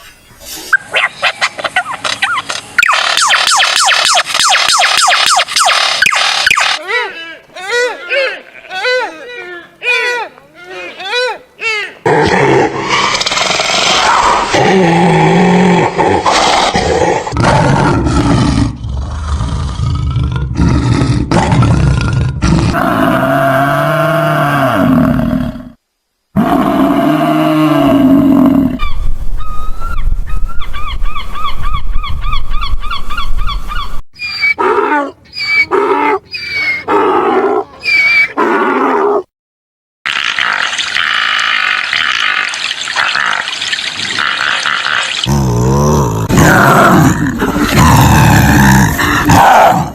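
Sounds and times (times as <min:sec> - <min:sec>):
fast warbling trill: 0:02.2 - 0:06.8
animal roars and growls: 0:12.0 - 0:25.8, 0:26.4 - 0:28.9, 0:44.1 - 0:49.9.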